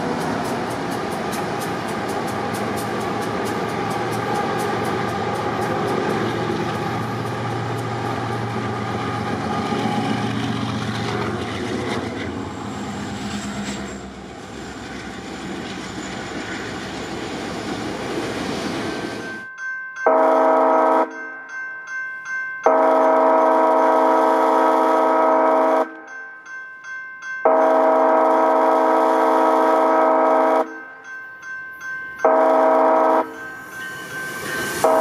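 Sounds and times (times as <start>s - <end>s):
wheels clicking over rails: 0.0s - 19.3s
diesel locomotive engine drone: 0.0s - 19.4s, 27.5s - 30.7s, 32.1s - 35.0s
multi-chime train horn: 20.0s - 21.4s, 22.6s - 26.3s, 27.4s - 31.1s, 32.1s - 35.0s.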